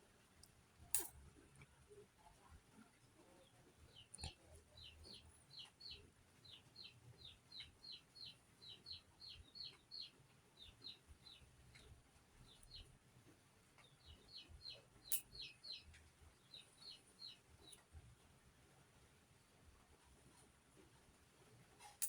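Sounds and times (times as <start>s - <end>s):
faint small bird chirping: 1.9s - 18.2s.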